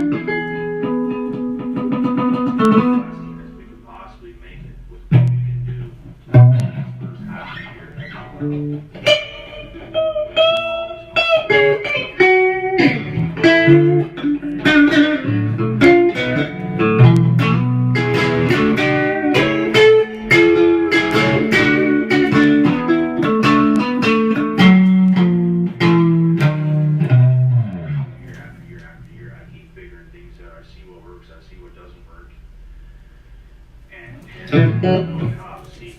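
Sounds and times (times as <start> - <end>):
electric guitar blues riff: 0.0 - 30.4, 34.1 - 35.9
low bass notes: 4.4 - 10.2, 11.2 - 30.2, 34.3 - 35.6.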